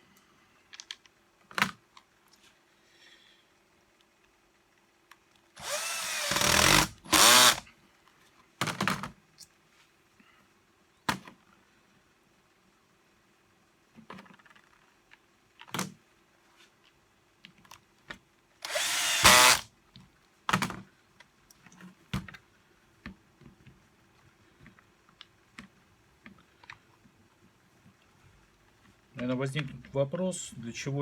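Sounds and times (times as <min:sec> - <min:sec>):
power screwdriver running: 0:05.6 - 0:07.6, 0:18.6 - 0:19.7.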